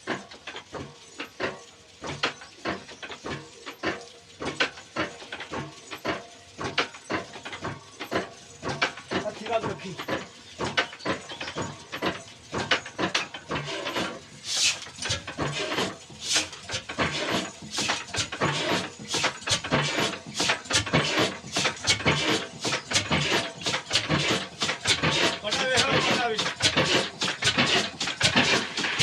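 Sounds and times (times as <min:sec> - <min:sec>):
clatter of knocks and clicks: 0:00.0 - 0:29.0
diesel engine thumping: 0:00.1 - 0:29.0
short hissing bursts: 0:14.4 - 0:14.9.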